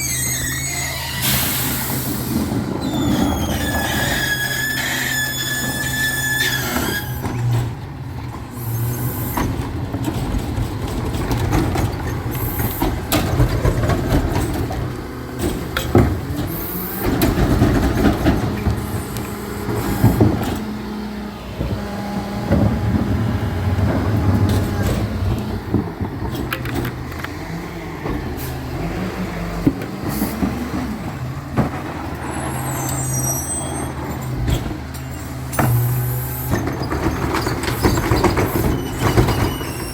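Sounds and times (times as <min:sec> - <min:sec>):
truck engine running: 0:00.0 - 0:39.9
air hissing: 0:01.2 - 0:02.6
clanks and knocks: 0:09.3 - 0:20.8, 0:22.4 - 0:27.4, 0:34.0 - 0:39.9.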